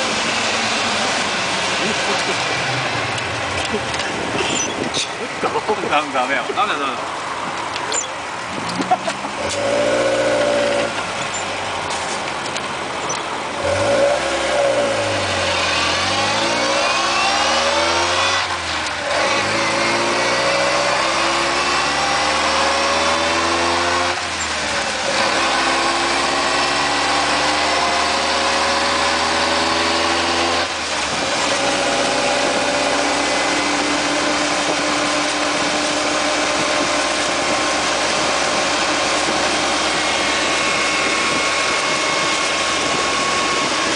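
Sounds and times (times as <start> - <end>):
vehicle accelerating through gears: 8.5 - 11.2, 13.1 - 43.9.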